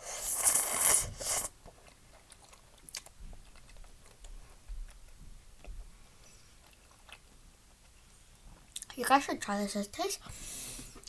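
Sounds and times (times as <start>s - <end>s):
person slurping noodles: 0.0s - 1.5s
chewing and mouth clicks: 1.6s - 5.8s, 6.6s - 8.0s.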